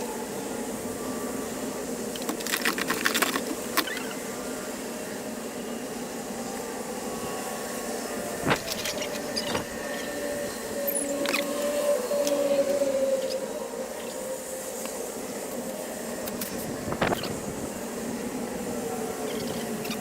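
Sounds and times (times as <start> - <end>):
steady hum: 8.3 - 10.6, 16.2 - 17.9.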